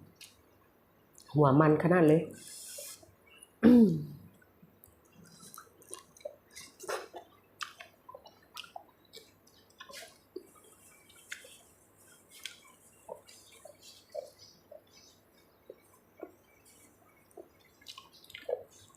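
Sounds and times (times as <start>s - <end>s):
wet chewing and smacking: 0.1s - 0.5s, 4.3s - 18.9s
person humming: 3.6s - 4.2s.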